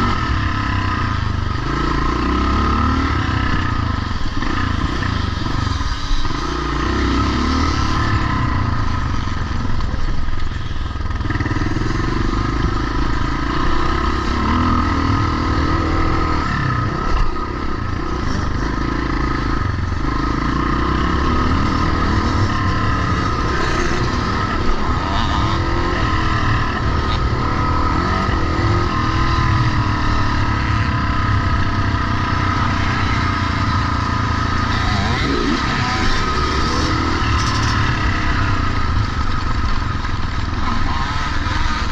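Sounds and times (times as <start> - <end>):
motocross motorcycles revving: 0.0 - 41.9.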